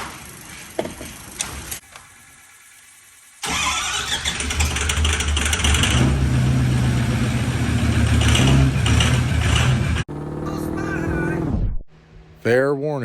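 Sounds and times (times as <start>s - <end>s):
diesel engine running: 3.4s - 11.5s.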